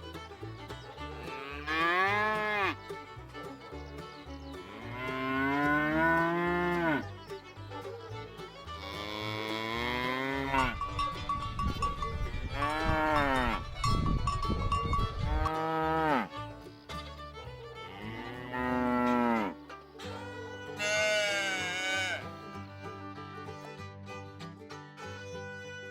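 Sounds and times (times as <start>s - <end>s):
cows mooing: 1.1s - 2.8s, 4.6s - 7.1s, 8.8s - 10.8s, 12.5s - 13.7s, 15.2s - 16.4s, 17.8s - 19.6s, 20.8s - 22.3s.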